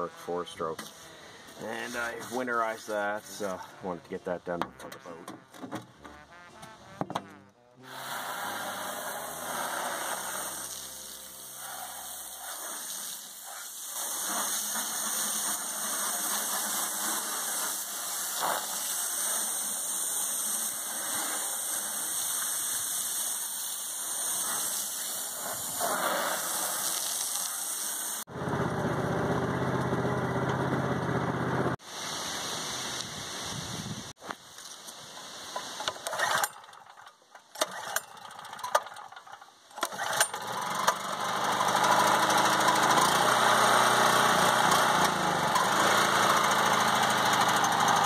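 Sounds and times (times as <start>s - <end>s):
portable generator engine running: 7.2s - 12.4s, 14.2s - 18.6s, 28.3s - 31.8s, 39.8s - 48.0s.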